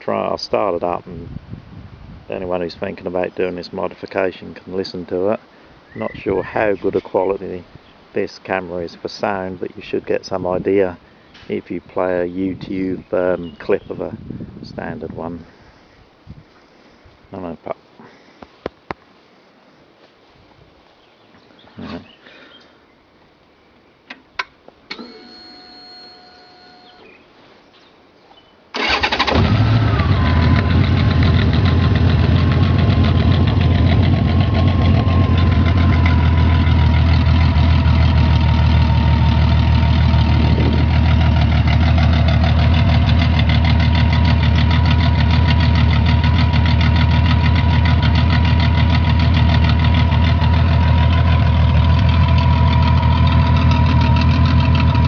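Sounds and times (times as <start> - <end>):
motorcycle engine starting and idling: 28.8 - 55.0.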